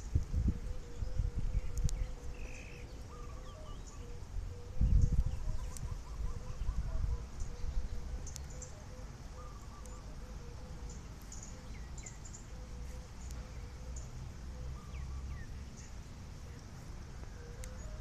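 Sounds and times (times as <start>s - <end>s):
wind rumble on microphone: 0.0s - 8.7s
small birds chirping: 0.0s - 18.0s.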